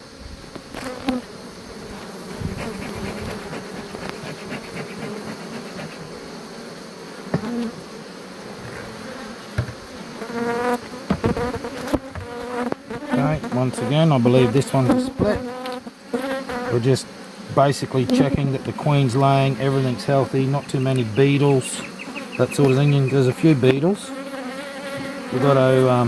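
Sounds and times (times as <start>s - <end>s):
bees buzzing: 0.0s - 26.0s
knocks on beehive: 7.3s - 7.7s, 9.5s - 9.9s, 10.7s - 12.8s.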